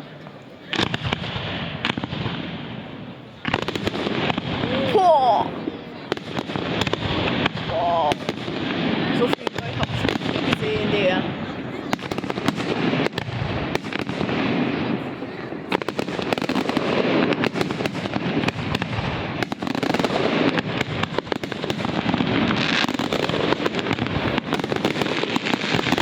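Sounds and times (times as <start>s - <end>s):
fireworks bursting and crackling: 0.0s - 26.0s.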